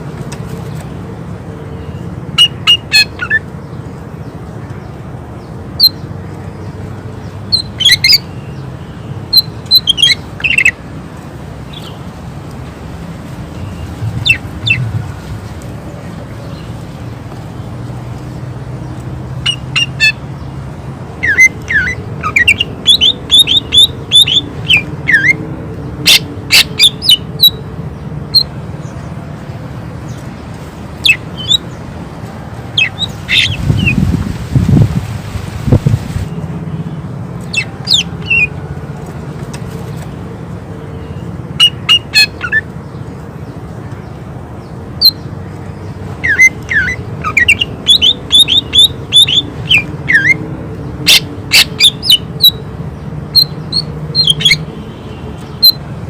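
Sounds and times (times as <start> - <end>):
bird singing sharp high calls: 1.7 - 3.4, 7.5 - 10.8, 13.5 - 15.0, 19.4 - 20.5, 21.2 - 25.4, 26.1 - 27.6, 31.0 - 31.8, 32.7 - 34.0, 37.5 - 38.6, 41.0 - 43.0, 45.0 - 50.4, 51.1 - 52.6, 53.3 - 55.9.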